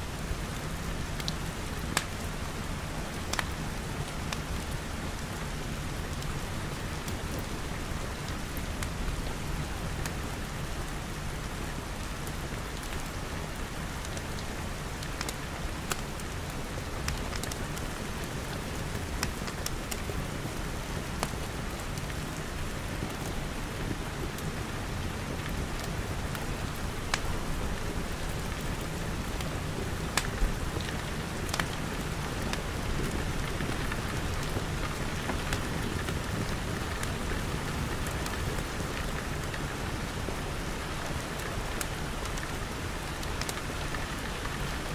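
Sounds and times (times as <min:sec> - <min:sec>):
wood fire crackling: 0:00.6 - 0:05.0, 0:12.2 - 0:24.7, 0:25.4 - 0:44.8
rain pattering on glass: 0:11.5 - 0:44.9.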